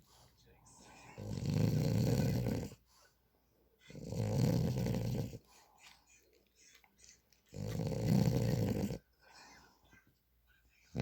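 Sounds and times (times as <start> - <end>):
quiet breathing: 0.0 - 4.0, 4.8 - 11.0
dog snoring: 1.1 - 2.8, 3.9 - 5.4, 7.5 - 9.1.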